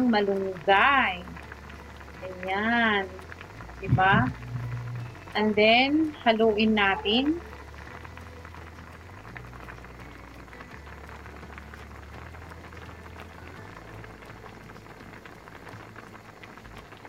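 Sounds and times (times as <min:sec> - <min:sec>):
low steady hum: 0:00.0 - 0:16.9
stew bubbling and crackling: 0:00.0 - 0:17.0.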